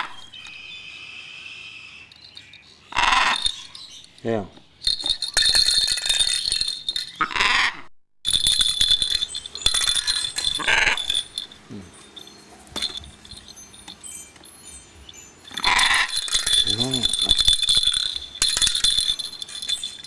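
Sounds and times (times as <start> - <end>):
steady high ringing tone: 8.3 - 20.0.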